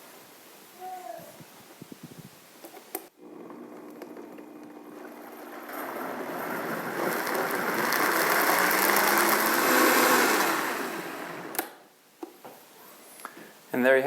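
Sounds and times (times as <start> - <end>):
blender motor whirring: 3.2 - 11.6.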